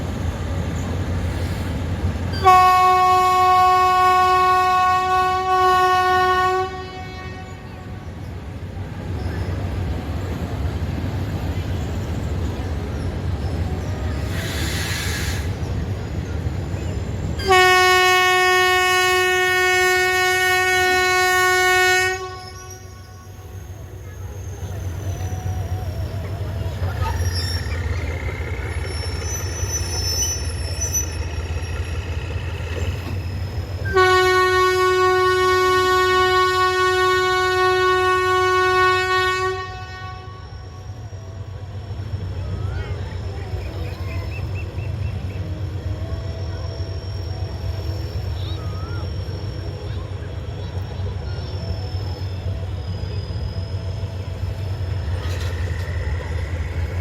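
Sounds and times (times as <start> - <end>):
train rumbling: 0.0 - 57.0
train horn blast: 2.3 - 8.2, 17.4 - 23.7, 33.8 - 41.1.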